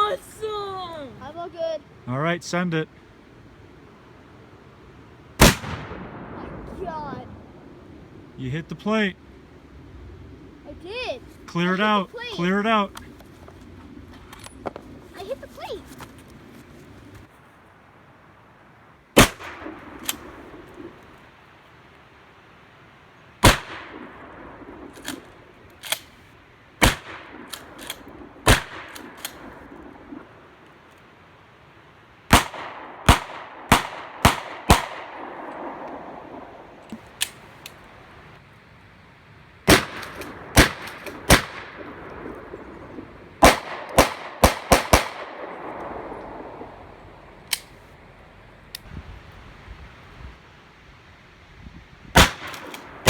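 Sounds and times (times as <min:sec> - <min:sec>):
gunshots with echo: 0:05.4 - 0:06.8, 0:26.8 - 0:29.6, 0:32.3 - 0:36.6, 0:39.7 - 0:42.7, 0:43.4 - 0:46.9, 0:52.2 - 0:53.0.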